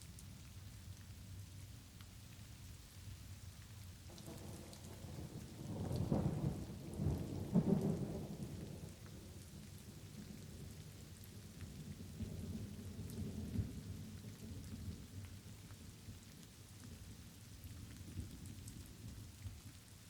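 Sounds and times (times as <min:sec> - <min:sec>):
light rain: 0:00.0 - 0:20.0
thunder rumbling: 0:04.1 - 0:09.3.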